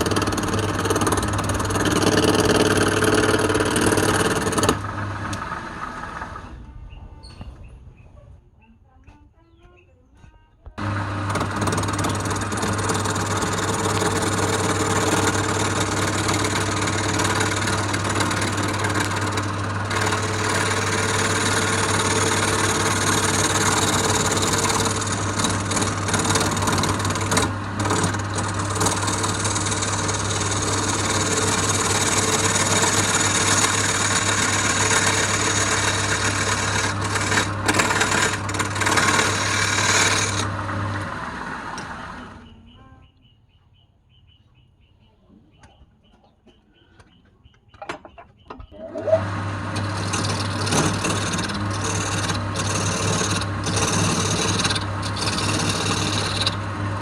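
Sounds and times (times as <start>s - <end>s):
tool scraping spinning wood: 0.0s - 6.4s, 10.8s - 42.4s, 48.8s - 57.0s
lathe motor humming: 0.0s - 6.5s, 10.8s - 42.5s, 48.8s - 57.0s.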